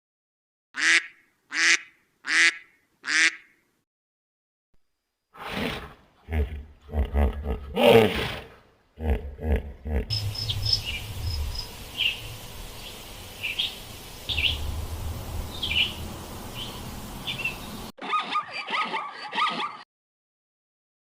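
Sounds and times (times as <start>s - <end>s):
steady outdoor hiss: 4.8s - 18.0s
loud low animal calls: 5.4s - 12.4s
birds chirping: 9.8s - 17.9s.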